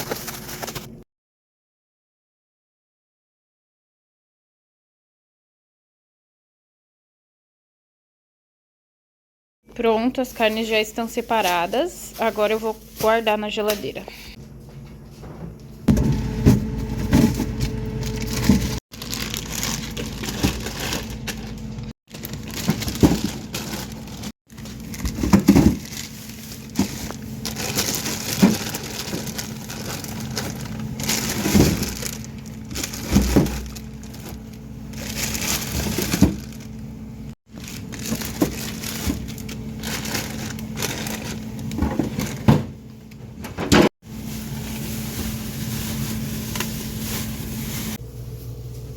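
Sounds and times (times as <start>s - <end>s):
plastic bags crinkling: 0.0s - 1.0s, 16.8s - 36.8s, 37.5s - 42.5s, 44.1s - 48.0s.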